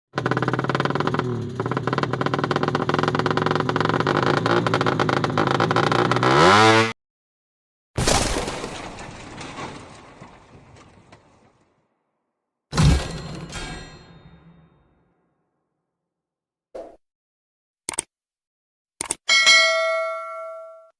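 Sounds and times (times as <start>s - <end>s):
motorcycle engine revving: 0.1s - 7.0s
loud ringing crash: 12.7s - 15.1s.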